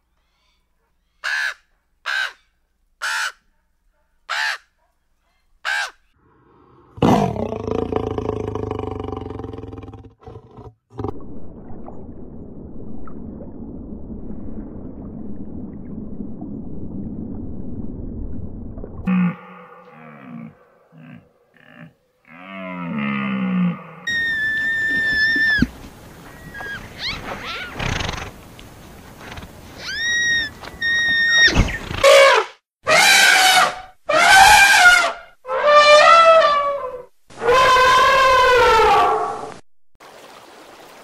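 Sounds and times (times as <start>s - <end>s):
crow cawing: 4.3s - 4.6s, 5.7s - 6.0s
large animal roaring: 6.2s - 11.2s, 19.1s - 24.1s.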